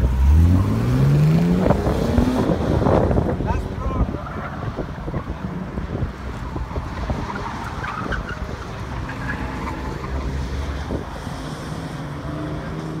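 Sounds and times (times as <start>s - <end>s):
car engines running: 0.0s - 13.0s
wind buffeting microphone: 1.3s - 9.1s.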